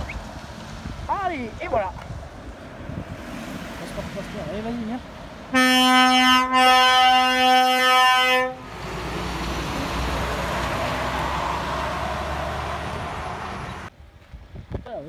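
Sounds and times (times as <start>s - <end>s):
road noise of passing vehicle: 0.0s - 15.0s
truck air horn blast: 5.5s - 8.6s.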